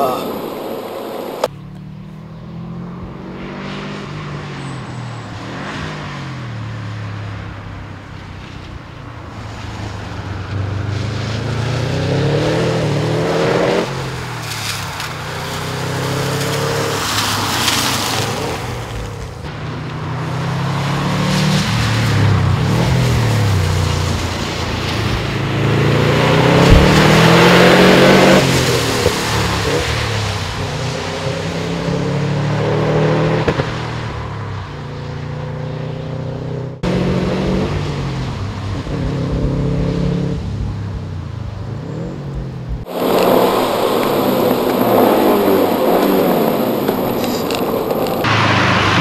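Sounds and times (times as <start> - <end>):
car engine revving through gears: 25.4 - 33.9, 35.5 - 40.5, 41.7 - 49.0.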